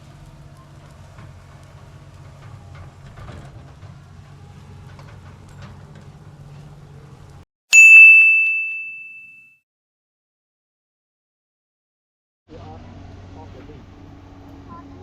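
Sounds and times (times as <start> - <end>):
low engine rumble: 0.0 - 7.4, 12.5 - 15.0
bell-like ding: 7.7 - 9.6.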